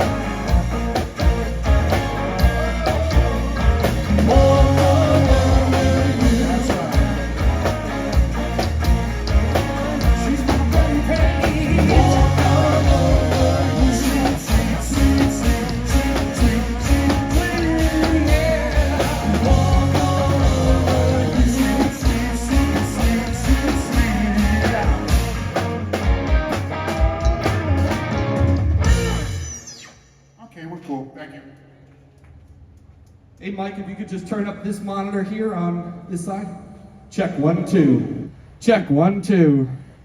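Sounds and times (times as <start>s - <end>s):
rock band playing: 0.0s - 30.0s
person singing: 1.2s - 25.4s.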